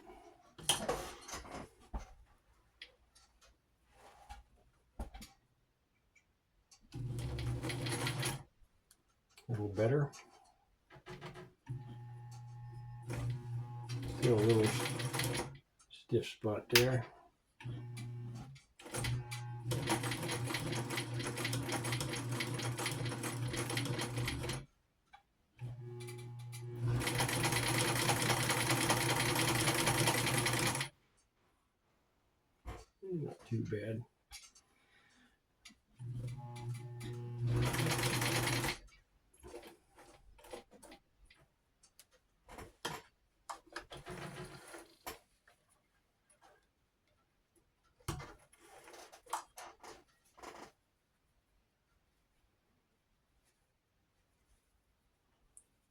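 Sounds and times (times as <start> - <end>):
sewing machine stitching: 6.9 - 8.4, 11.1 - 15.6, 17.6 - 24.7, 25.6 - 30.9, 36.0 - 38.8, 43.7 - 45.2.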